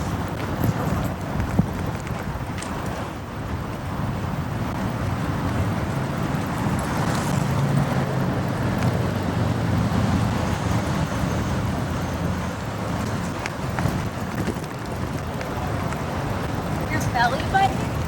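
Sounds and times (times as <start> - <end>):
road and wind noise: 0.0 - 18.0.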